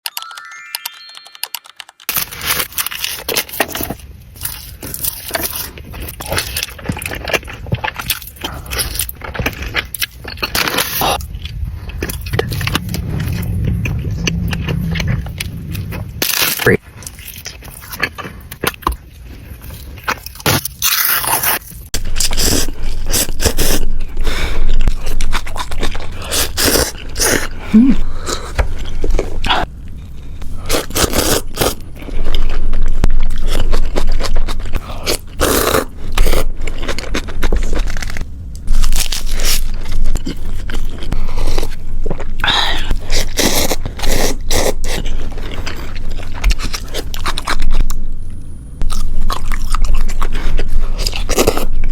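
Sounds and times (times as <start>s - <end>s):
scraping with crunching and chewing: 2.1s - 51.9s.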